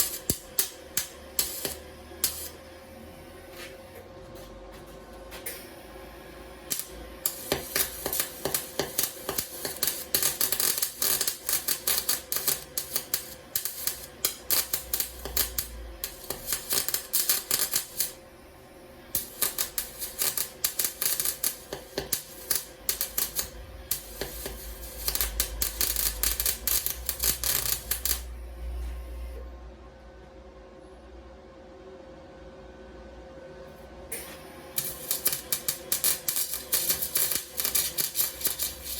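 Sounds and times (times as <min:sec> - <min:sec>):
welder arc crackling: 0:00.0 - 0:02.6, 0:06.6 - 0:18.2, 0:19.0 - 0:28.4, 0:34.1 - 0:38.9.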